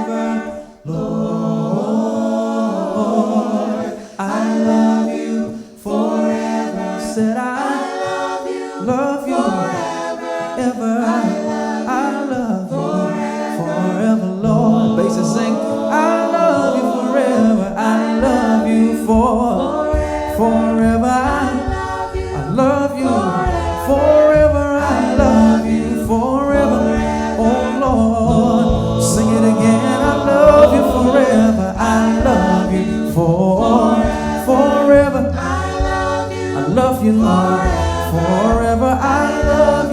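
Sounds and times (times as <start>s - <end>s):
gospel voices singing in harmony: 0.0s - 39.9s
low bass voice: 23.9s - 34.2s.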